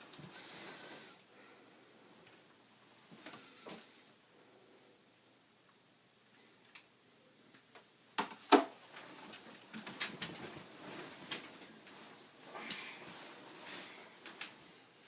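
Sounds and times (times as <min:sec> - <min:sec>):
rustling: 0:08.8 - 0:15.0.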